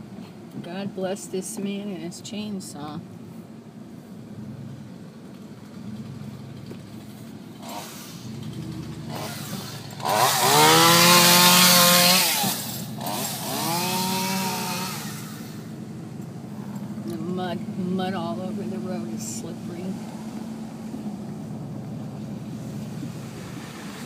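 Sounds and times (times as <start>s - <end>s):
low steady hum: 0.0s - 10.2s, 12.6s - 23.4s
chainsaw revving: 5.6s - 15.7s.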